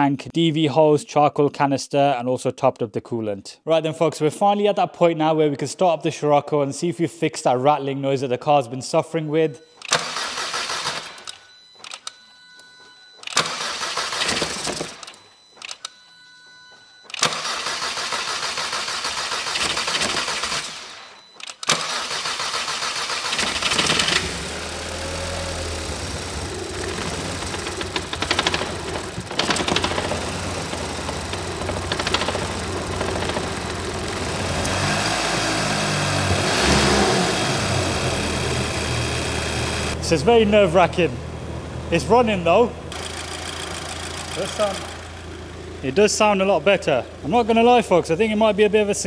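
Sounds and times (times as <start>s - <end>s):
starter motor cranking: 9.8s - 12.1s, 13.2s - 15.9s, 17.1s - 40.0s, 41.9s - 49.0s
car engine idling: 22.0s - 49.0s.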